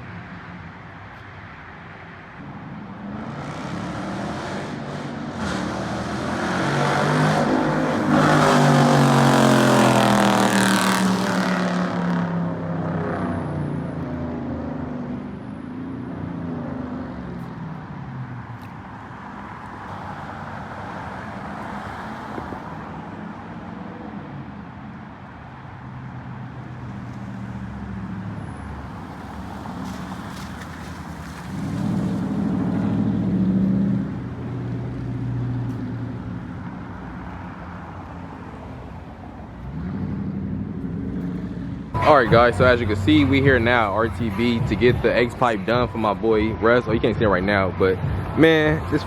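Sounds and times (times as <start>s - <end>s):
car engine running: 40.7s - 49.0s.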